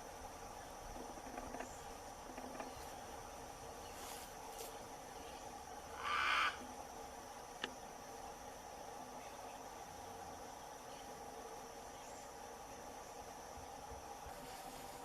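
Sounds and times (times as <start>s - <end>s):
insects droning: 0.0s - 15.0s
macaw squawk: 6.0s - 6.6s.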